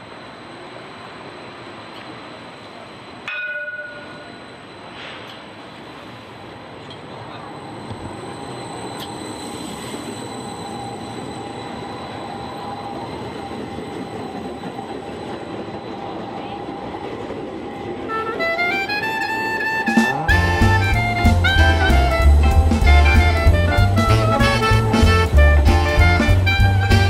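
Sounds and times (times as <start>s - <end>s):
electric tram rumbling: 0.0s - 27.0s
tram whine: 0.0s - 27.0s
brass band music: 18.1s - 27.0s.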